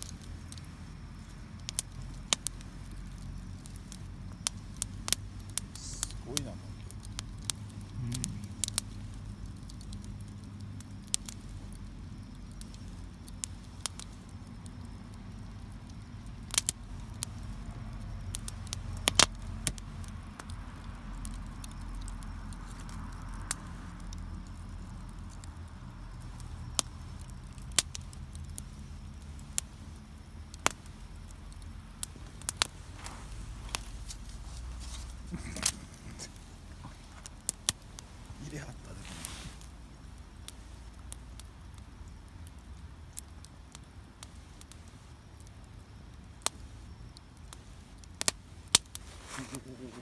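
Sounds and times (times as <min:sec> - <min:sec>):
low steady rumble: 0:00.0 - 0:21.2
fire popping: 0:00.0 - 0:50.0
wood fire crackling: 0:00.0 - 0:50.0.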